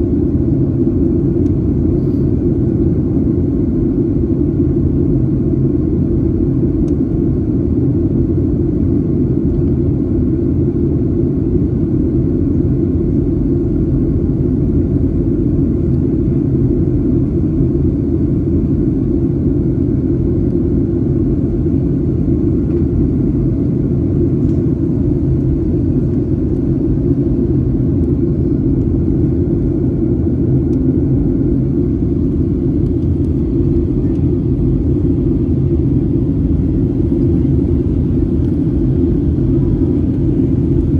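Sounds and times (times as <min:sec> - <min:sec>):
airliner cabin noise: 0:11.3 - 0:40.9.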